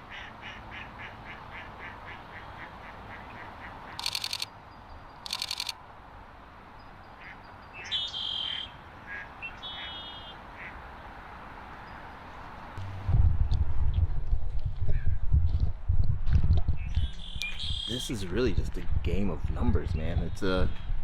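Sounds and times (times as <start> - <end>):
ducks quacking: 0.0 - 4.0
rapid clicks: 4.0 - 4.5, 5.3 - 5.7
higher bird calls: 7.2 - 10.7.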